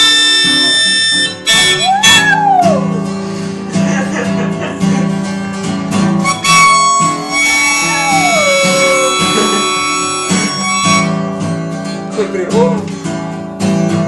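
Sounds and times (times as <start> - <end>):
blues guitar music: 0.0 - 14.0
dog howling: 1.8 - 2.9, 7.3 - 10.5.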